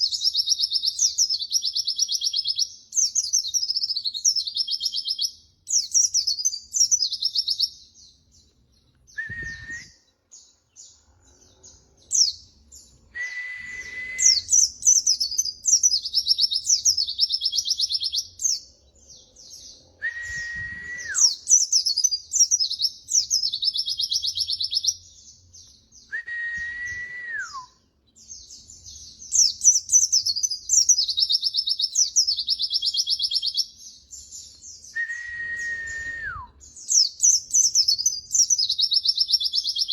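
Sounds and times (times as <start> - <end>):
low whistle sliding down: 20.0 - 21.3, 35.0 - 36.5.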